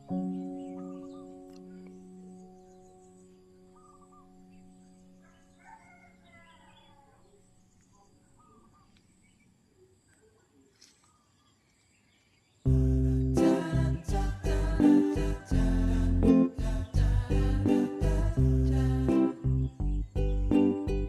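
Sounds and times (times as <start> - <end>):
rooster crowing: 5.2 - 7.4, 13.6 - 16.2
faint short bird calls: 7.9 - 9.1
loud music: 12.7 - 21.0.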